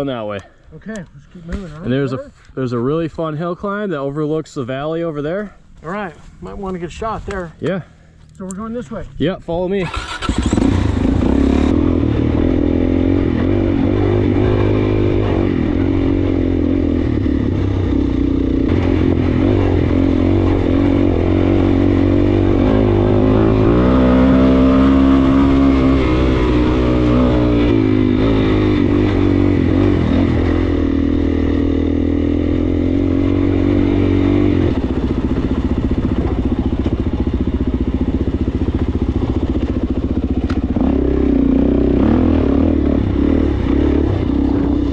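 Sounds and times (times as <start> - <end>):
motorcycle engine running: 9.9 - 44.9.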